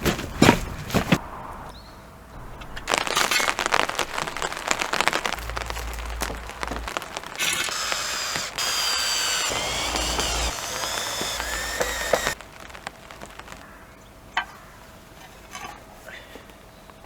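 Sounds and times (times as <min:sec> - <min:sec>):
power tool high whine: 0:07.4 - 0:12.4.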